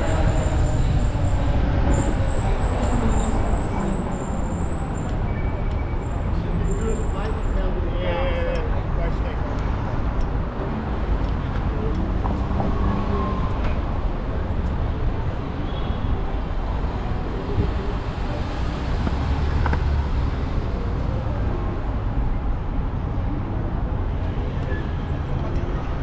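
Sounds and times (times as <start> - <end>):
wind rumble on microphone: 0.0 - 4.5
city street traffic noise: 0.0 - 26.0.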